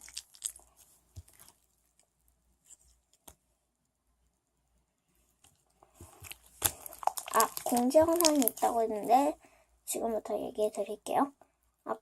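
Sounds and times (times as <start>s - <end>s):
soft handling noises: 0.0s - 3.5s, 5.2s - 9.2s.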